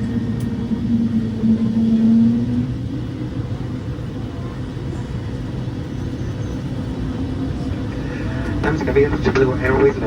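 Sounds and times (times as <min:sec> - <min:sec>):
jet rolling low rumble: 0:00.0 - 0:10.0
steady hum: 0:06.8 - 0:10.0.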